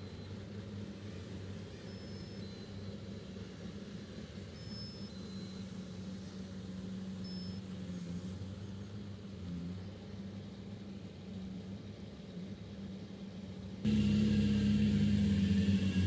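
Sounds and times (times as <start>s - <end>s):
heavy diesel engine running: 13.9s - 16.0s.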